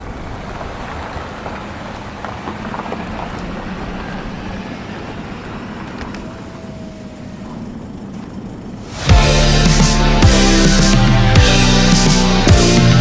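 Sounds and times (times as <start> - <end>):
wind: 0.0 - 9.1.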